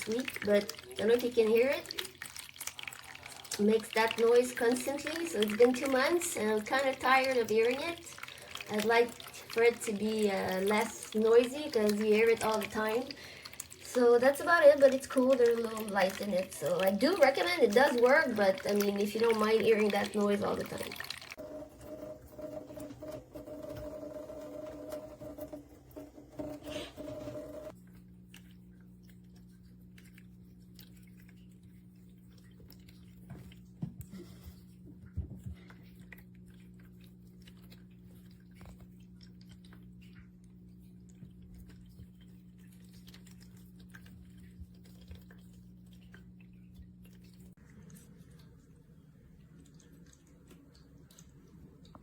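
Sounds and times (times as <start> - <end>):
water fountain pump humming: 0.0 - 52.0.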